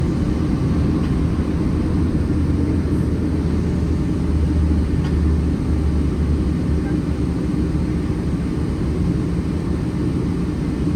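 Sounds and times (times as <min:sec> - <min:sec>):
airplane cabin low rumble: 0:00.0 - 0:10.9.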